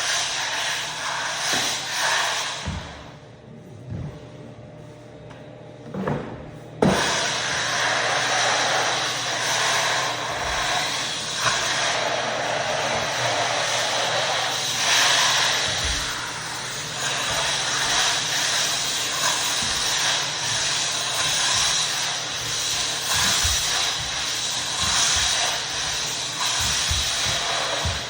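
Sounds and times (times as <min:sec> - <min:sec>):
floor buffer running: 0:00.0 - 0:28.0
floor buffer switching on knock: 0:17.1 - 0:28.0.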